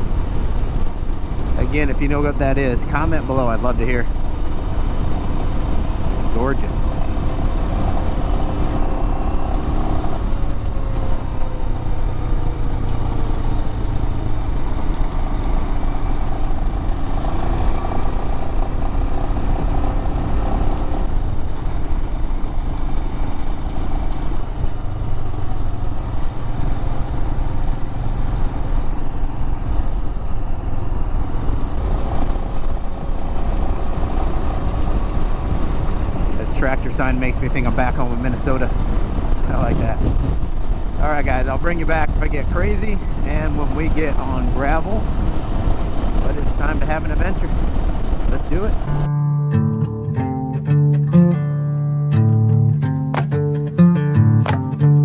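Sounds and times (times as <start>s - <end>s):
road and wind noise: 0.0s - 55.0s
motorcycle engine running: 44.3s - 55.0s.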